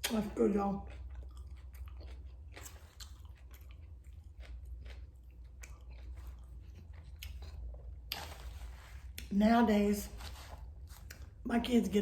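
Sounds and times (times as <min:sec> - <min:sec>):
steady low hum: 0:00.0 - 0:12.0
chewing with wet mouth clicks: 0:00.8 - 0:09.3.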